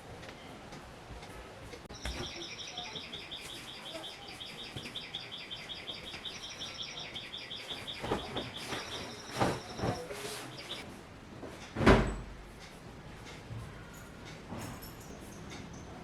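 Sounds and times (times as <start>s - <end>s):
bird chirping trill: 1.9s - 10.8s.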